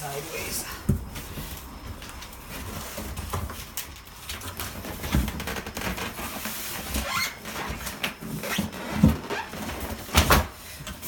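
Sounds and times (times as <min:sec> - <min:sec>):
cardboard and styrofoam scraping: 0:04.4 - 0:10.8.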